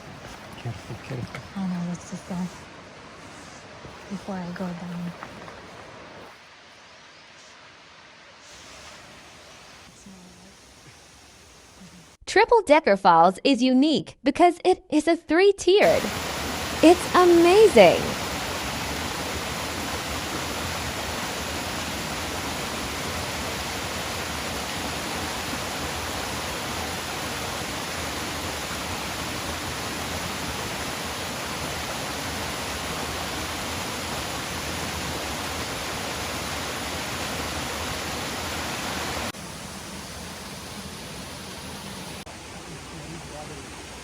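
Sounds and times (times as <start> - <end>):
waterfall rushing: 0.0 - 12.2, 15.8 - 44.0.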